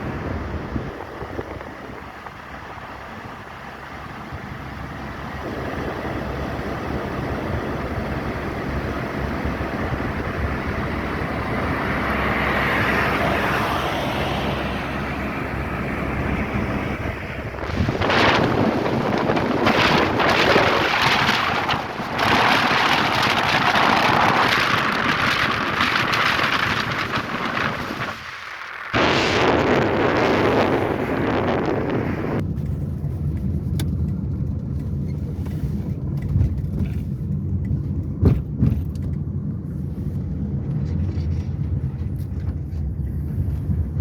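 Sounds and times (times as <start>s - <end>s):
wind rumbling on microphone: 0.0s - 44.0s
rain: 19.7s - 31.1s.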